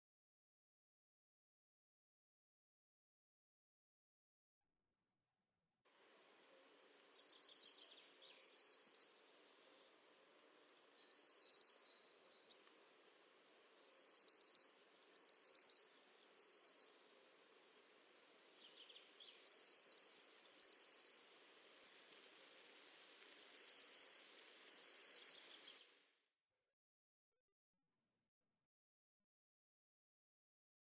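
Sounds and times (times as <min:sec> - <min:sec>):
small songbird singing trills: 0:06.7 - 0:10.0, 0:10.7 - 0:17.1, 0:18.6 - 0:21.3, 0:23.1 - 0:26.0.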